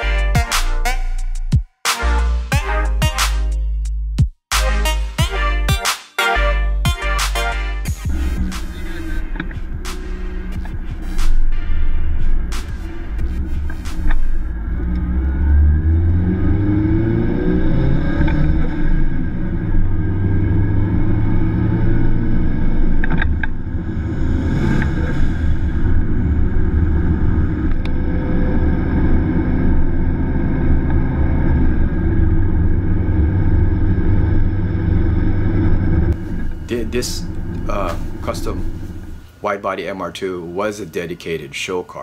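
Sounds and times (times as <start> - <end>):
car engine revving: 7.2 - 39.4.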